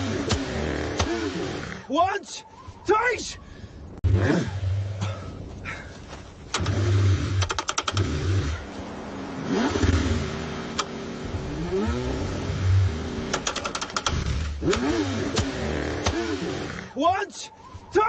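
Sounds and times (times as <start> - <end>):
car engine cranking: 0.0 - 1.8, 6.4 - 8.8, 9.4 - 16.9.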